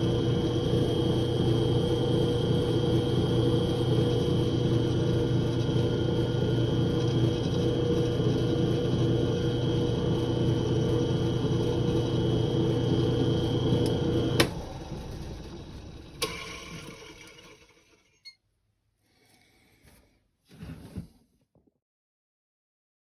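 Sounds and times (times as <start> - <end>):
electric motor running: 0.0 - 17.8
motor switch click: 13.8 - 14.6.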